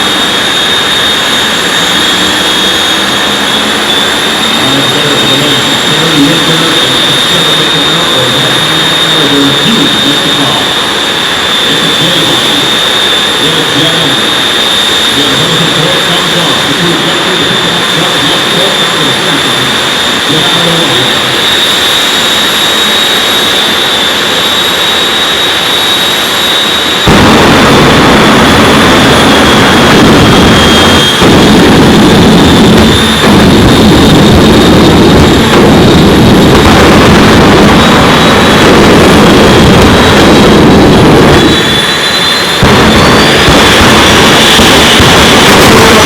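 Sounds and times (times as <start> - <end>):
heavy rumble: 0.0 - 46.0
jet engine turbine whine: 0.0 - 46.0.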